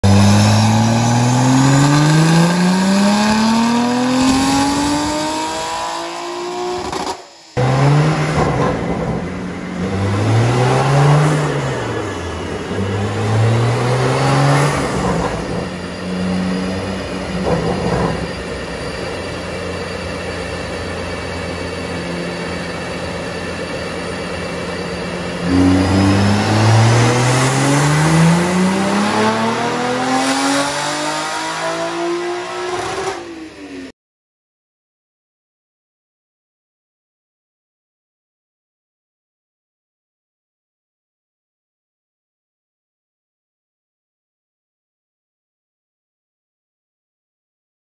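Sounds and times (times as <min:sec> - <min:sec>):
car engine revving on a dyno: 0:00.0 - 0:33.9.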